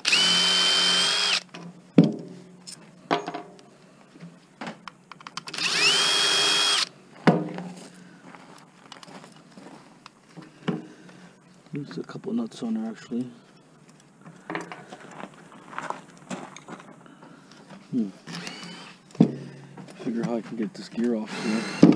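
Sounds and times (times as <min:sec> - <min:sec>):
cordless drill whining: 0:00.0 - 0:01.5, 0:05.4 - 0:06.9, 0:18.3 - 0:19.0.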